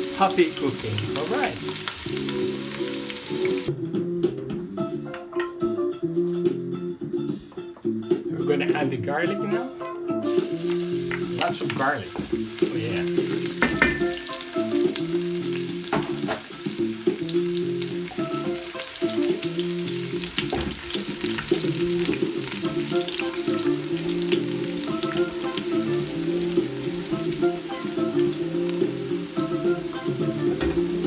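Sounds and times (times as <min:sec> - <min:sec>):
garlic sizzling in oil: 0:00.0 - 0:03.7, 0:10.2 - 0:31.0
smooth jazz music: 0:00.0 - 0:31.0.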